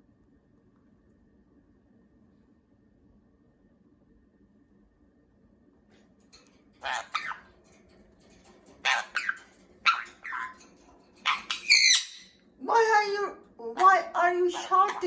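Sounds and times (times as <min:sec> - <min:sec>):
parrot squawking: 0:06.8 - 0:07.5, 0:08.7 - 0:12.4, 0:13.7 - 0:15.0.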